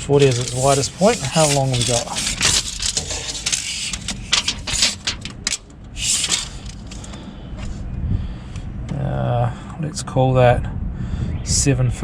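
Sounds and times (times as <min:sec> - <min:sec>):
tape measure clicks and rattles: 0:00.0 - 0:07.7
tape measure blade scraping: 0:00.0 - 0:07.8.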